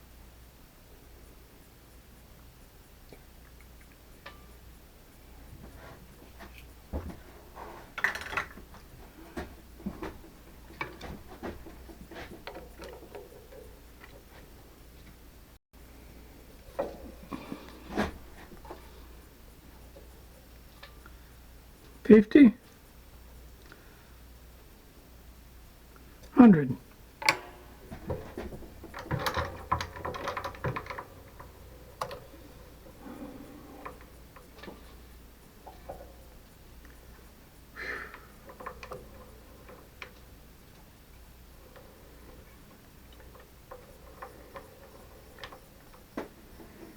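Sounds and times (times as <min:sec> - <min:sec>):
faint low hum: 0:00.0 - 0:46.9
tools and parts clicking: 0:05.5 - 0:15.2, 0:27.2 - 0:37.4, 0:38.0 - 0:46.9.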